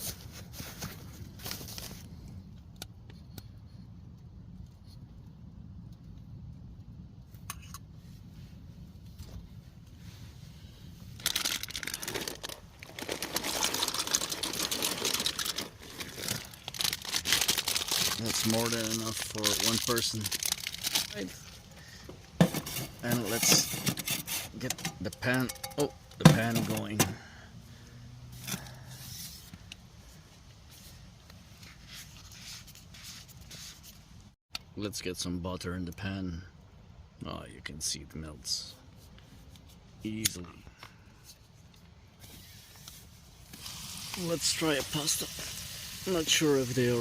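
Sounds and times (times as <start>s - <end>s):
dry pasta rattling: 11.2s - 21.2s
plastic bag crinkling: 11.2s - 21.7s
light scrapes and rustles: 18.0s - 27.2s, 28.3s - 34.1s, 40.8s - 47.0s.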